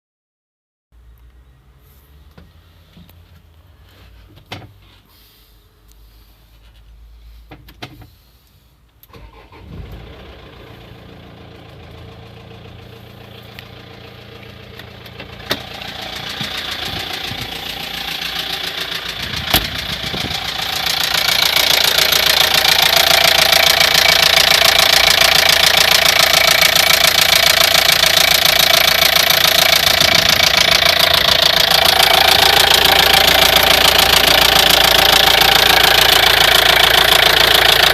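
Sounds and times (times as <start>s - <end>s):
diesel engine running: 8.1s - 37.9s
engine knock: 11.2s - 37.9s.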